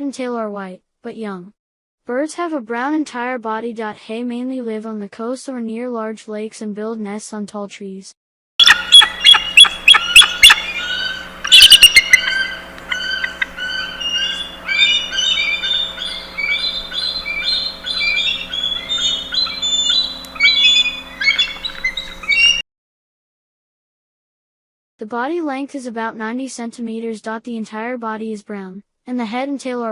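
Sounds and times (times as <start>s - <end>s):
eagle piping calls: 8.6s - 22.6s
quick high chirps: 8.6s - 22.6s.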